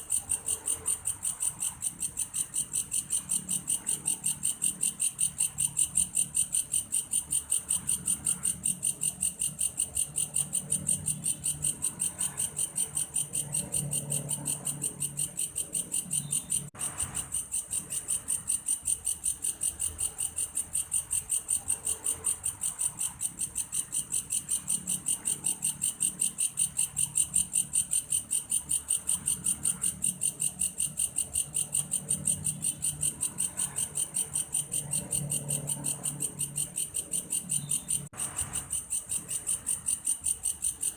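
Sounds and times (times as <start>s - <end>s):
grasshopper chirping: 0.0s - 40.9s.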